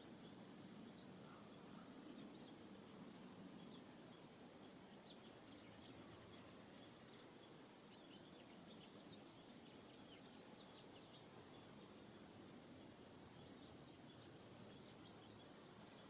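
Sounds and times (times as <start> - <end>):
songbirds chirping: 0.0 - 16.0
steady outdoor hiss: 0.0 - 16.0.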